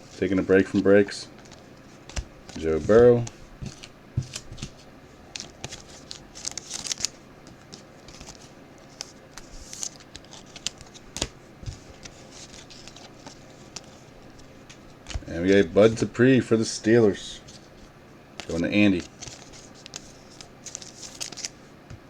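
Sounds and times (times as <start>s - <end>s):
trading cards sliding: 0.2s - 16.1s, 17.4s - 21.6s
pack wrappers crinkling: 1.4s - 14.5s, 18.4s - 21.6s.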